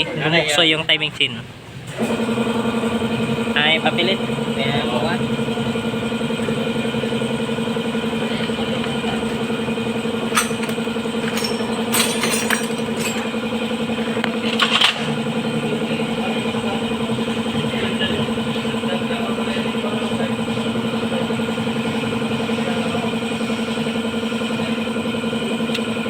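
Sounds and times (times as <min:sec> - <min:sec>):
steady mechanical hum: 0:00.0 - 0:26.0
metallic clicks of tools: 0:10.3 - 0:13.3.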